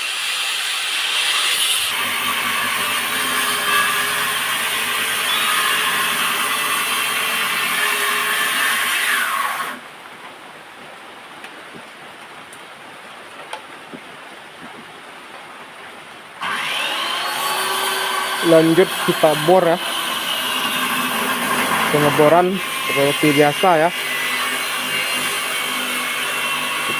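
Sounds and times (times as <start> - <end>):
electric power tool whining: 0.0 - 9.8, 16.4 - 26.9.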